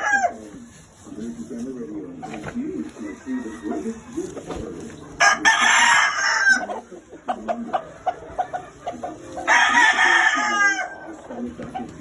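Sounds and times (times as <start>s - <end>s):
chicken clucking: 0.0s - 12.0s
rooster crowing: 3.0s - 4.5s, 5.2s - 6.7s, 9.5s - 10.9s.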